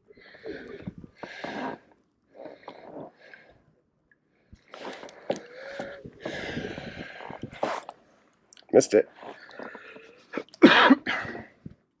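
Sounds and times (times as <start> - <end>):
person breathing: 4.6 - 7.9.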